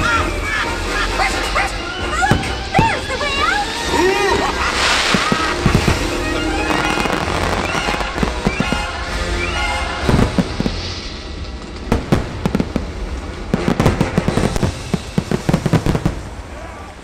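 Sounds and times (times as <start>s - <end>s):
music: 0.0s - 12.0s, 12.9s - 16.1s
fireworks bursting and crackling: 0.0s - 17.0s.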